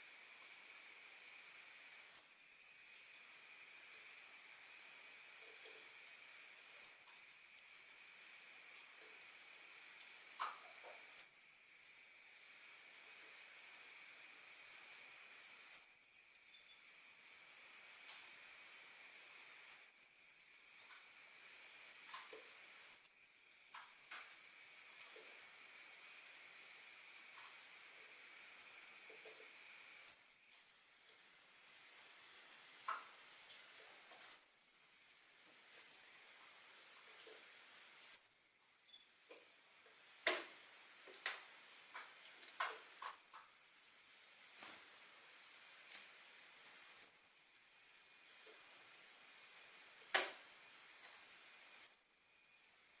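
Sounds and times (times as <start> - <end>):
faint high hum: 0.0 - 53.0
bird whistles sliding downward: 2.2 - 3.0, 6.9 - 8.0, 11.2 - 12.2, 19.7 - 20.7, 30.1 - 31.0, 34.2 - 35.4, 38.2 - 39.1, 43.1 - 44.1, 46.7 - 48.0, 51.8 - 52.8.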